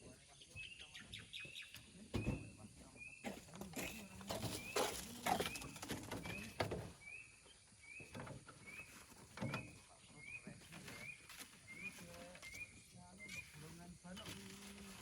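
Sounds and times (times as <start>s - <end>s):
knocks and scrapes: 3.2s - 7.0s.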